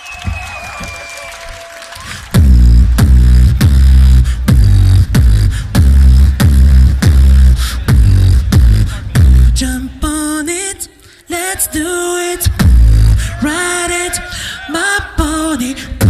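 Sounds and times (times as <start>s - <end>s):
beatboxed bass kicks: 2.3s - 10.1s, 12.4s - 14.0s.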